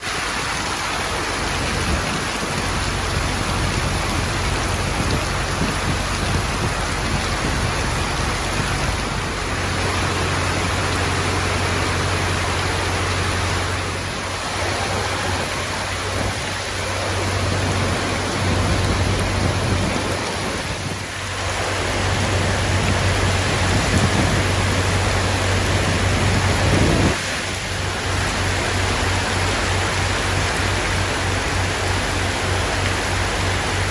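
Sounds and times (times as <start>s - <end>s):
heavy rain pouring: 0.0s - 33.9s
low rumble: 0.6s - 27.2s.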